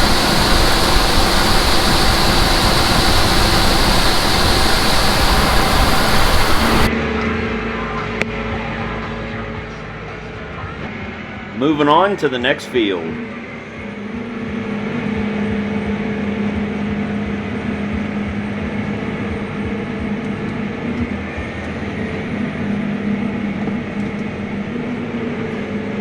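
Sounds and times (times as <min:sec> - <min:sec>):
large vehicle engine humming: 0:00.0 - 0:06.9.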